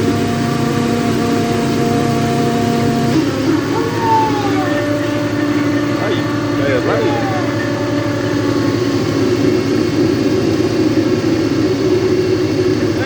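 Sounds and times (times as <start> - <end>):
boat engine running: 0.0 - 13.0
brief gliding tones: 1.1 - 10.1.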